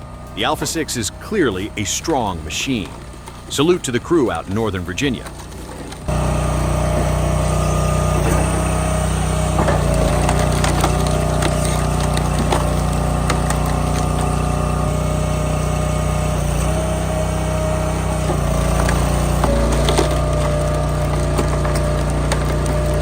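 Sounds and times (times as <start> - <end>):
wood splitter engine whining: 0.0 - 23.0
wood cracking apart: 5.2 - 15.1, 18.2 - 23.0.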